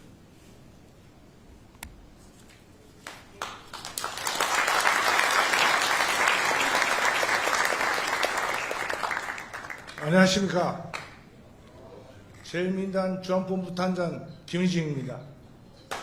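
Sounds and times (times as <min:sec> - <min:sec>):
audience applauding: 0:03.0 - 0:11.2.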